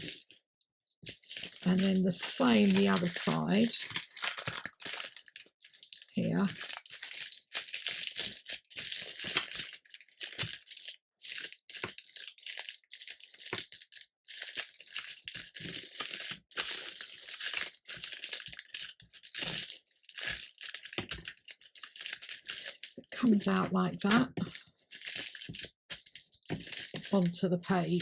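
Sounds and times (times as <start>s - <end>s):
parchment paper crinkling: 1.0s - 28.0s.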